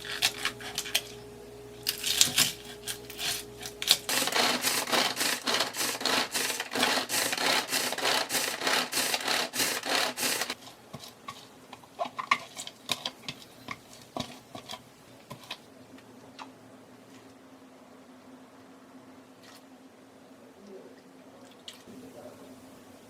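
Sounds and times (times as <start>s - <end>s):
rhythmic scrubbing strokes: 0.0s - 10.6s.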